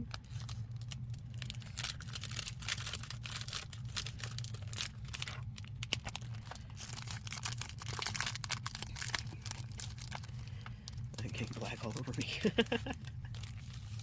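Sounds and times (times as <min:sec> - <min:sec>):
paper sheets rustling: 0:13.4 - 0:14.0.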